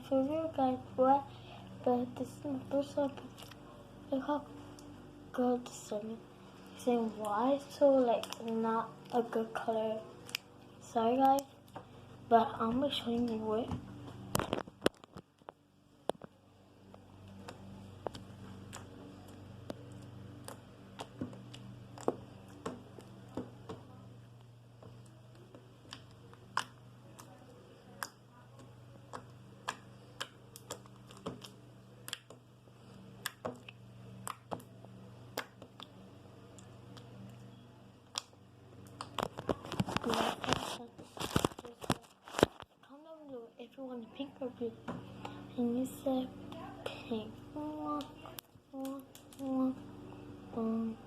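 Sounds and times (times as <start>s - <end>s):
faint low hum: 0.0s - 51.0s
slime clicking and popping: 17.4s - 23.4s, 25.3s - 32.4s, 33.2s - 34.7s, 35.3s - 35.9s, 38.0s - 39.6s.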